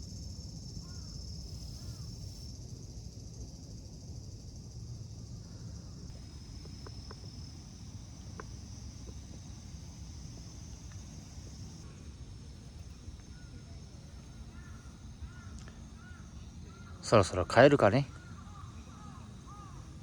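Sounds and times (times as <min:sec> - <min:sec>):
insects chirring: 0:00.0 - 0:20.0
low background rumble: 0:00.0 - 0:20.0
faint clicks: 0:06.1 - 0:11.8, 0:15.4 - 0:15.8.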